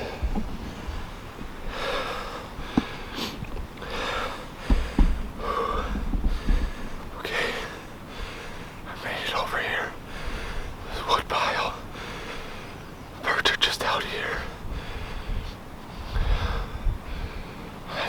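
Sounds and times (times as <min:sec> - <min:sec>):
low thumps: 0:00.0 - 0:07.1
man breathing hard: 0:00.0 - 0:08.9, 0:09.8 - 0:11.0, 0:11.7 - 0:12.8, 0:14.3 - 0:18.0.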